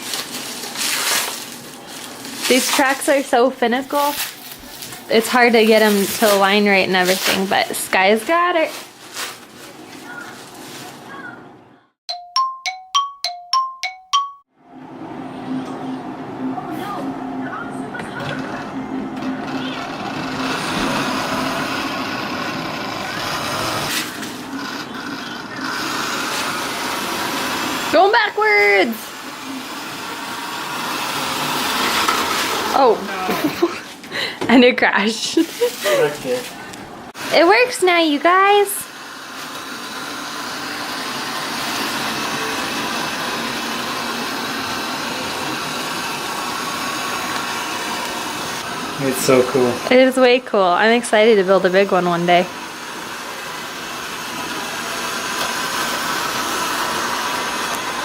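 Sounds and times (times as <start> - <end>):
model train motor whirring: 19.2 - 32.9, 37.2 - 50.1.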